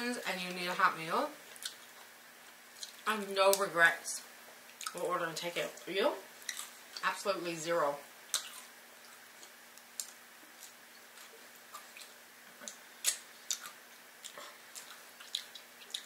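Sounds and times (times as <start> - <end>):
people chewing: 1.5 - 3.1, 6.4 - 7.0, 8.3 - 16.0.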